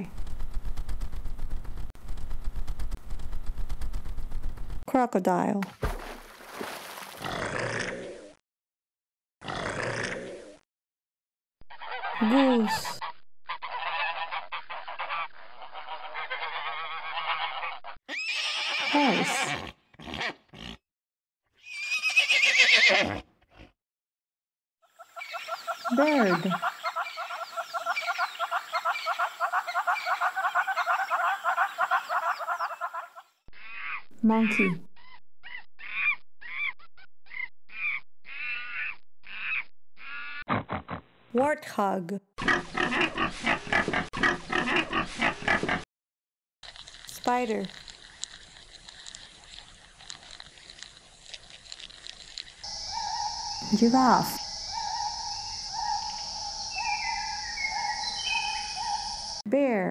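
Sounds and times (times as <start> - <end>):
horse snorts: 7.2 - 8.3, 9.4 - 10.5, 18.9 - 20.8, 42.4 - 45.8
geese honking: 13.6 - 18.0
horses neighing: 18.1 - 20.8, 21.6 - 23.7
monkey calling: 25.0 - 36.7, 37.3 - 40.4, 51.7 - 59.4.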